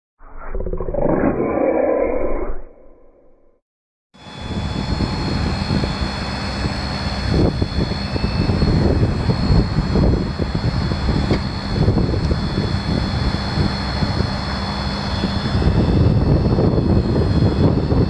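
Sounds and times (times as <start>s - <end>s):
high turbo whine: 4.2s - 18.0s.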